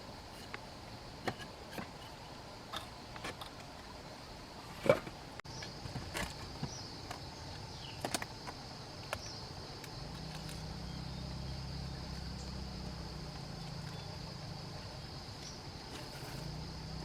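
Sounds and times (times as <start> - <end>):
low steady hum: 0.0 - 17.0
high insect buzz: 5.5 - 17.0.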